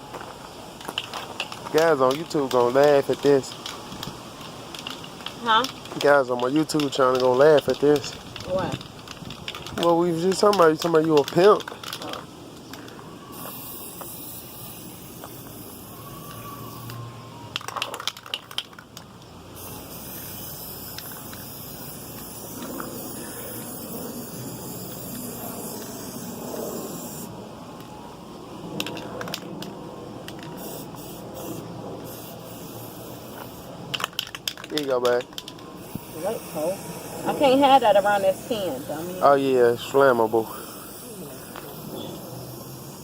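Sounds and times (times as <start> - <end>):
spray can hissing: 13.3 - 18.7, 19.6 - 27.3, 30.5 - 34.5, 35.3 - 39.1, 39.8 - 43.0.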